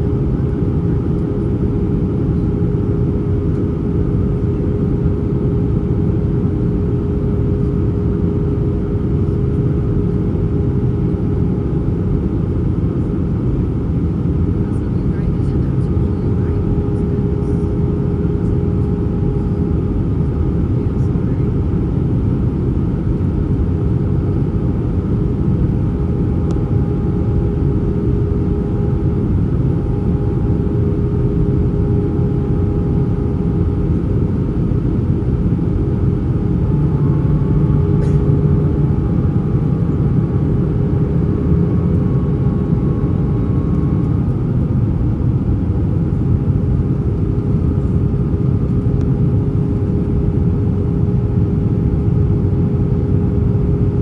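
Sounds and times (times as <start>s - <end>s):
aircraft cabin engine rumble: 0.0s - 54.0s
higher engine tone: 35.3s - 44.3s.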